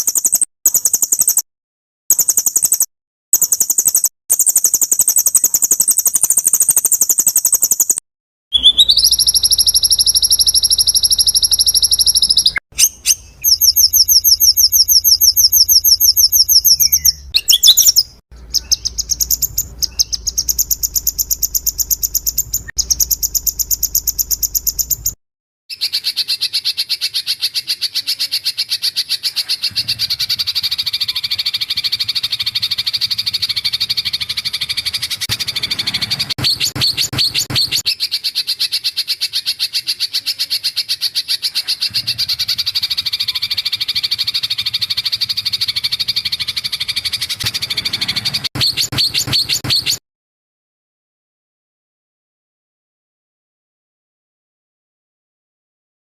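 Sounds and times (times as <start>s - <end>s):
songbird sharp high notes: 8.5s - 25.2s.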